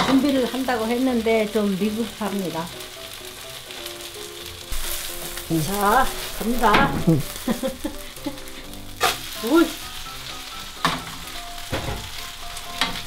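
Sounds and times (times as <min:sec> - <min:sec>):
pancake sizzling in oil: 0:00.0 - 0:13.0
pan knocking on stove: 0:06.4 - 0:07.4, 0:10.8 - 0:12.2.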